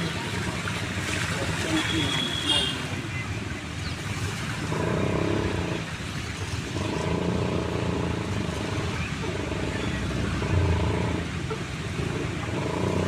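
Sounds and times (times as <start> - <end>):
motor vehicle engine running: 4.2 - 13.0.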